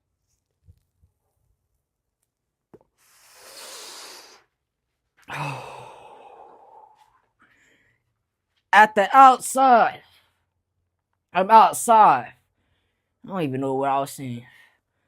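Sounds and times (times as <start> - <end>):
man inhaling: 3.0 - 4.5, 5.3 - 8.0
man exhaling loudly: 5.2 - 7.2.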